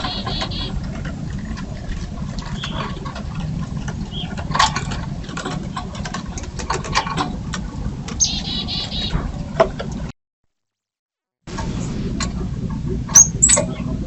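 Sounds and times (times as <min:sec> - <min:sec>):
harsh buzzy bird call: 0:00.0 - 0:00.7, 0:08.2 - 0:09.2
birds clicking and tapping: 0:00.0 - 0:10.0, 0:11.6 - 0:13.9
low steady rumble: 0:00.0 - 0:10.1, 0:11.5 - 0:14.0.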